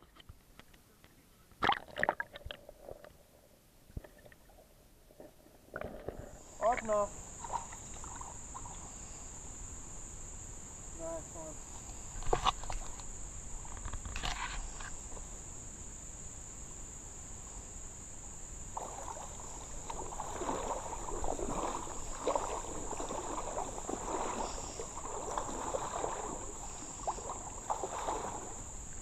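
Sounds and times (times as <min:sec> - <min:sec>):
insects chirring: 0:00.0 - 0:29.0
water sloshing and splashing: 0:01.6 - 0:03.1, 0:04.0 - 0:08.9, 0:18.7 - 0:29.0.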